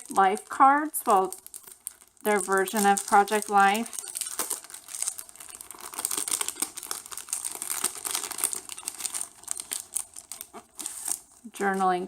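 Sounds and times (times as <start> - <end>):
packaging rustling and crackling: 0.0 - 12.0.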